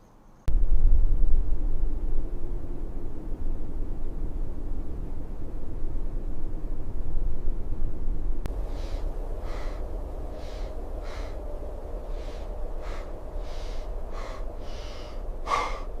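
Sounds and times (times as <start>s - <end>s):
steady low rumble: 0.5s - 16.0s
person panting heavily: 8.6s - 11.4s, 12.1s - 16.0s
person gasping: 8.7s - 9.8s, 10.4s - 11.4s, 12.2s - 16.0s.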